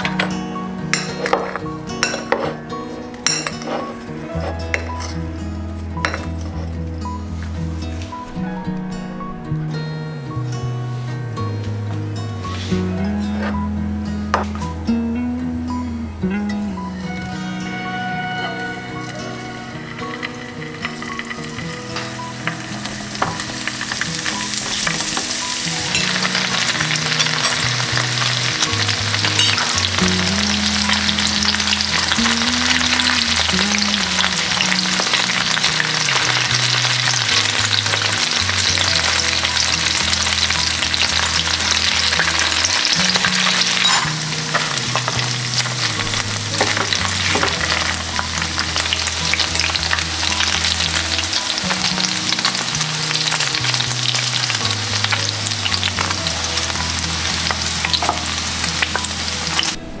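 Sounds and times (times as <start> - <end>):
spatula scraping a pan: 1.1 - 5.1
cheese sizzling in hot oil: 19.0 - 59.8.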